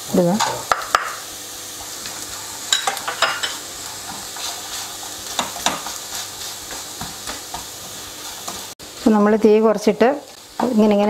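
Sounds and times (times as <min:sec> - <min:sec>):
pan sizzling: 0:00.0 - 0:11.0
wooden spatula scraping a pan: 0:02.0 - 0:08.8.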